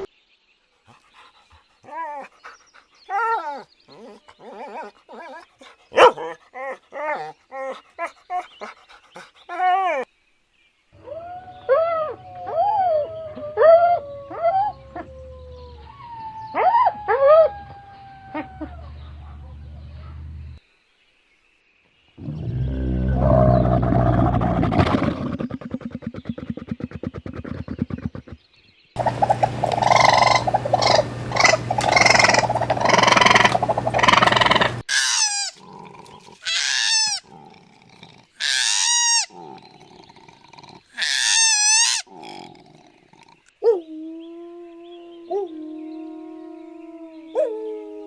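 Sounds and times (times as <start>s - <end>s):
low pulsing animal call: 11.0s - 20.6s, 22.2s - 28.4s, 29.0s - 48.0s
harsh animal call: 29.0s - 43.3s
short pitched animal calls: 29.1s - 35.6s.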